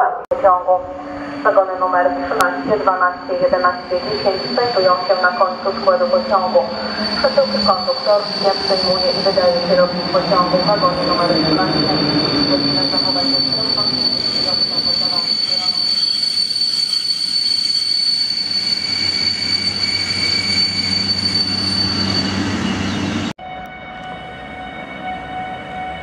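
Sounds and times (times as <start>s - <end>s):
high whine: 0.3s - 25.0s
distant train hum: 0.8s - 17.4s
electric train rolling past: 0.9s - 26.0s.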